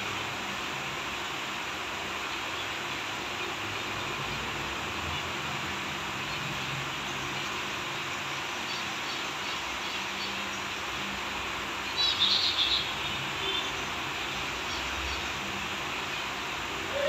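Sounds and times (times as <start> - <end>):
steady hiss: 0.0 - 17.0
bird chirping: 6.2 - 10.7, 11.8 - 17.0.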